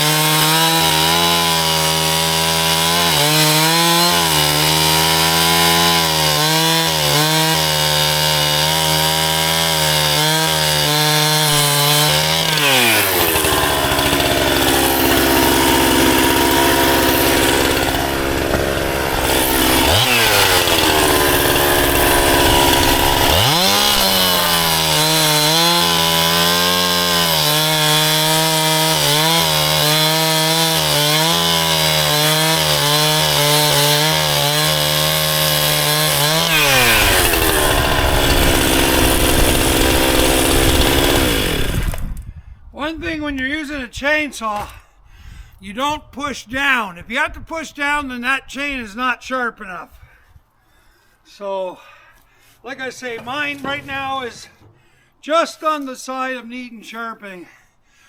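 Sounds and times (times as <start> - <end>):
chainsaw cutting log: 0.0 - 42.3.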